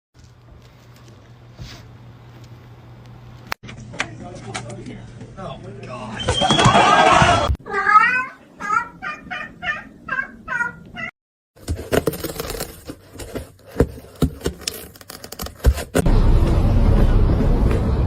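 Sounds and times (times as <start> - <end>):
cat chirping: 7.7 - 11.1.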